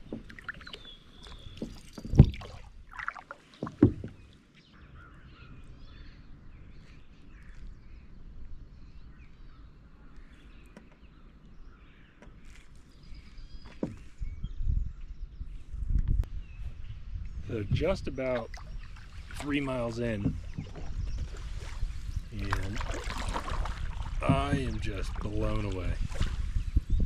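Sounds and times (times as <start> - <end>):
small birds chirping: 0.0 - 2.6, 3.4 - 27.0
paddle strokes in water: 0.0 - 4.5, 17.6 - 26.9
light water sounds: 0.0 - 4.6, 17.6 - 26.6.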